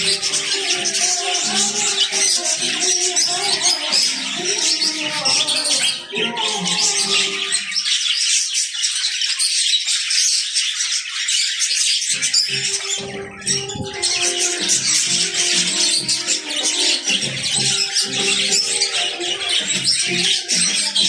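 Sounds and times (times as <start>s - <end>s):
background music: 0.0s - 7.8s, 12.1s - 21.0s
budgerigars chattering: 0.0s - 21.0s.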